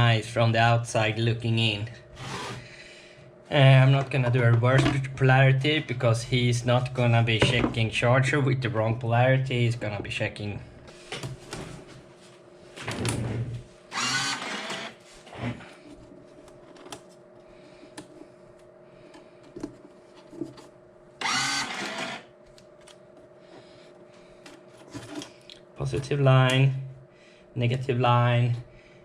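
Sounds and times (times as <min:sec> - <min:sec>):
steady low hum: 0:00.0 - 0:29.0
power drill whirring: 0:02.2 - 0:02.6, 0:13.9 - 0:15.0, 0:21.2 - 0:22.3.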